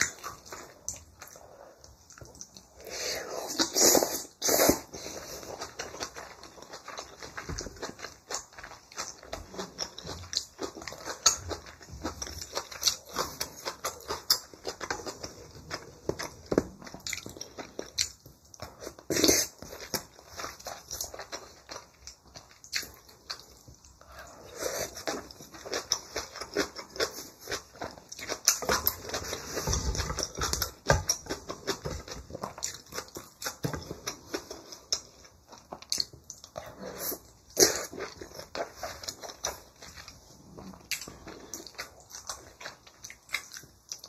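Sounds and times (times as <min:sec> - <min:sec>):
wet chewing and smacking: 0:00.0 - 0:44.0.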